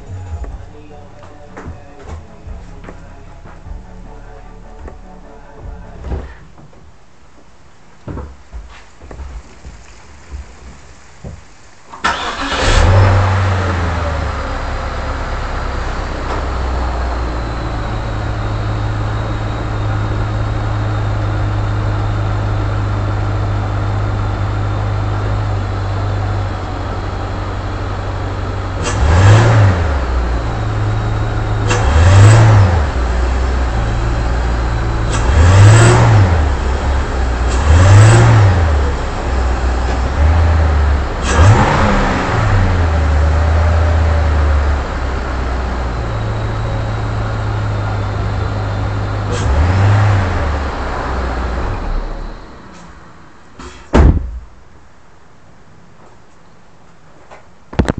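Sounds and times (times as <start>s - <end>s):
car engine idling and revving: 9.6s - 53.7s.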